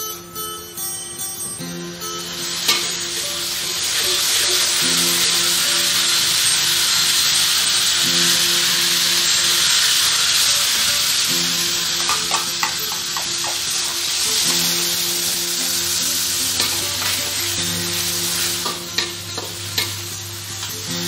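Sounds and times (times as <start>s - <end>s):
aromatics sizzling in hot oil: 1.5s - 21.0s.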